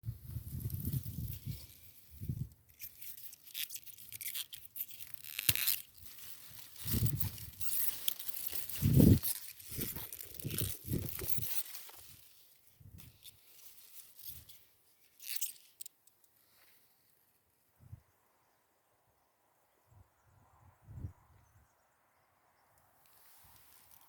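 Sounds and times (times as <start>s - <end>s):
pea plants rustling: 0.1s - 17.1s, 23.1s - 24.0s
pea pods snapping and tearing: 0.4s - 12.3s.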